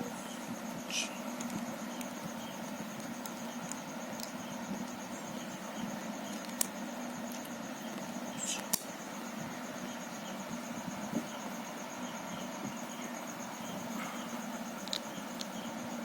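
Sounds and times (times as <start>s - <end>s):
high-pitched pulsing chirp: 0.0s - 16.0s
steady hiss: 0.0s - 16.0s
plastic cube pieces clicking: 6.3s - 6.7s, 14.8s - 15.5s.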